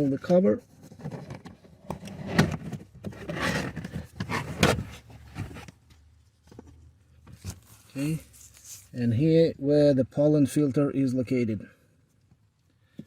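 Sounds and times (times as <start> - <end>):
plastic scraping and rustling: 0.7 - 9.0.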